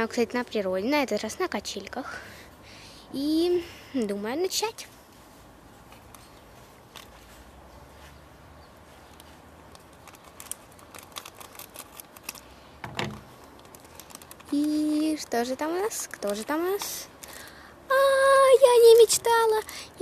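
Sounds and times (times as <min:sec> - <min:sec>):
plastic packaging clicks and crackles: 0:09.1 - 0:17.6.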